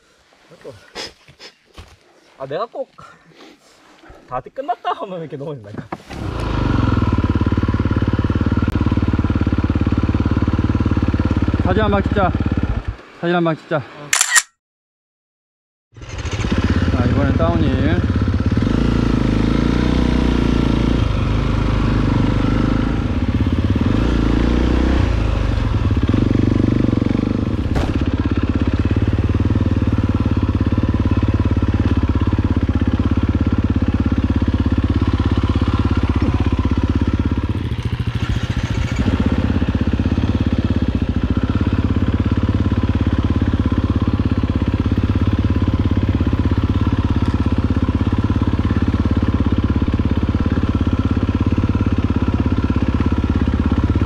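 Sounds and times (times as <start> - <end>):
motorcycle engine running: 6.1 - 13.0, 16.0 - 54.0
motorcycle rattling over rocks: 27.5 - 29.0
sharp knock: 27.7 - 28.2.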